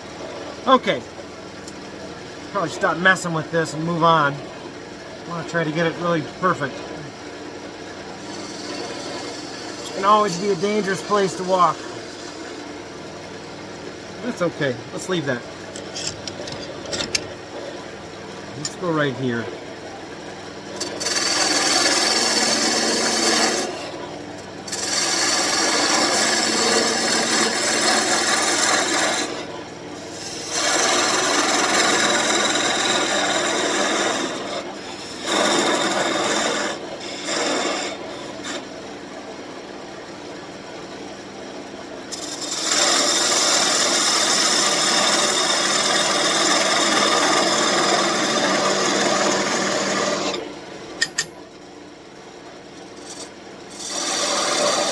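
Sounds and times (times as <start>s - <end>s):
lathe motor humming: 0.0s - 38.8s, 42.1s - 51.3s, 53.0s - 54.9s
lathe tool scraping wood: 8.1s - 12.6s, 14.2s - 17.8s, 20.7s - 24.0s, 24.7s - 38.8s, 42.1s - 50.5s, 53.0s - 54.9s.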